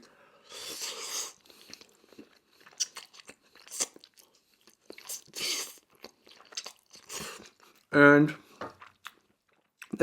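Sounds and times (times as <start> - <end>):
chewing crunchy fried chicken: 0.7 - 7.9.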